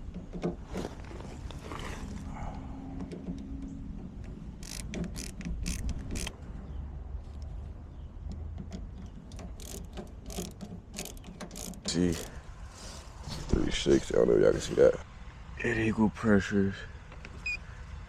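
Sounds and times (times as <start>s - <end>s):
rapid metallic clicking: 8.6s - 12.4s.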